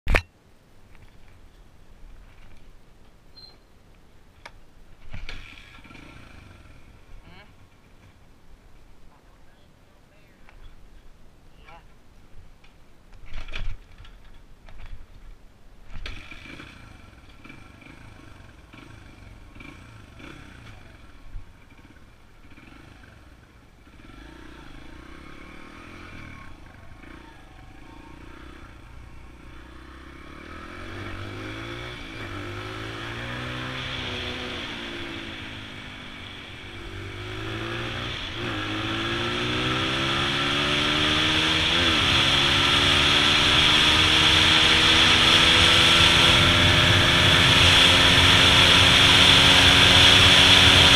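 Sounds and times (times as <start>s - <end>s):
dirt bike engine revving: 16.0s - 50.9s.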